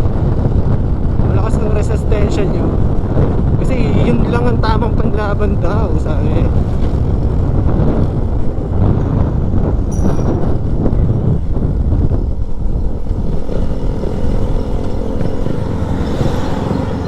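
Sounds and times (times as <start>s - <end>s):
wind buffeting microphone: 0.0s - 17.0s
high squeak: 9.9s - 10.5s
motorcycle engine drone: 10.7s - 17.0s.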